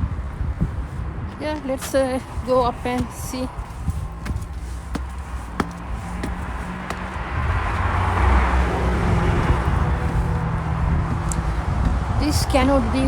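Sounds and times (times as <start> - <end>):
car driving past: 5.6 - 12.1.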